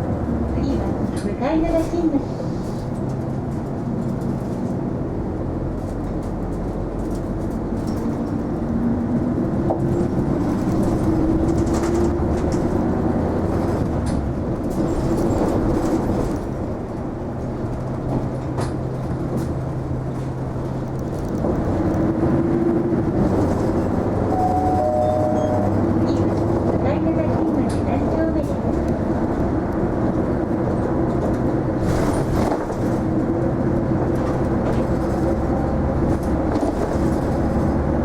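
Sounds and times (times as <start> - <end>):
bus engine hum: 0.0 - 38.0
whine rising in pitch: 24.3 - 25.8.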